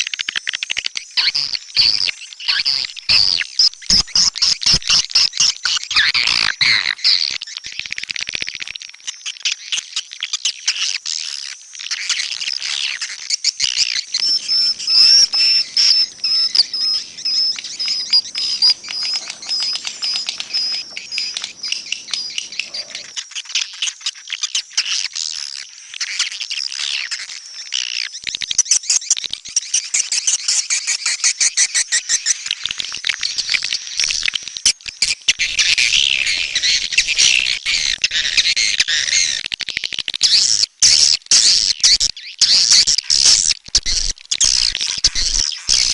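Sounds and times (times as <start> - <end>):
swiftlets chirping and twittering: 13.6 - 23.1.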